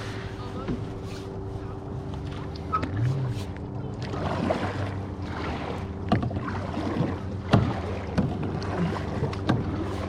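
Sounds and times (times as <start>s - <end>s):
steady low hum: 0.0s - 10.0s
wind: 0.0s - 10.0s
paddle water splashing and dripping: 2.1s - 10.0s.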